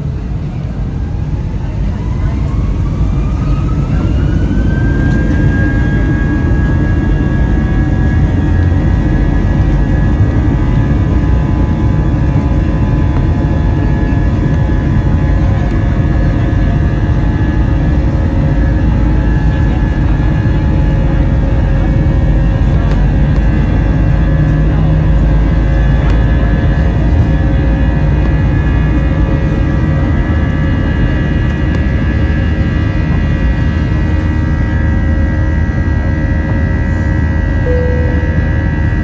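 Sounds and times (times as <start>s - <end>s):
heavy engine rumble: 0.0s - 39.0s.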